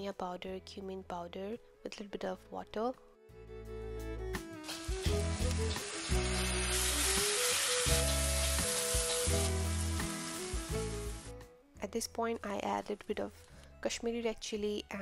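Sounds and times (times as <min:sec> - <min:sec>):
spice mix sizzling in oil: 0:04.6 - 0:11.3.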